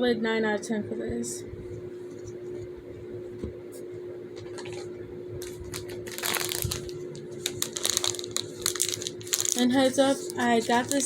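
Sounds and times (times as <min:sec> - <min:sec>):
faint steady hum: 0:00.0 - 0:11.0
crinkly rustle: 0:04.5 - 0:11.0.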